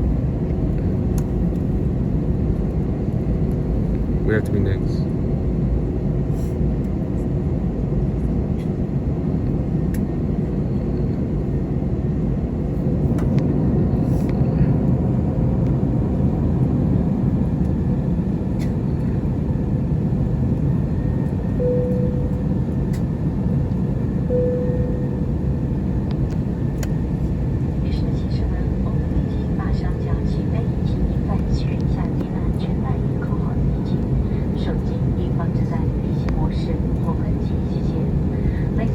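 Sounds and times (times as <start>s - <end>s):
aircraft engines rumbling in cabin: 0.0s - 38.9s
cabin air: 12.7s - 38.9s.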